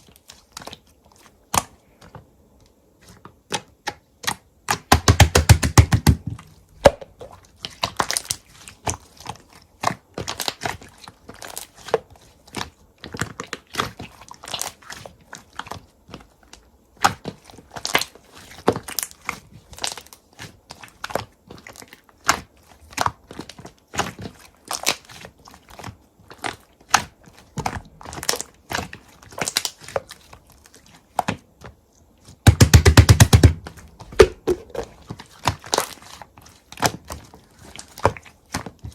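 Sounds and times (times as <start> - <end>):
slime squeezed by hand: 33.4 - 38.9.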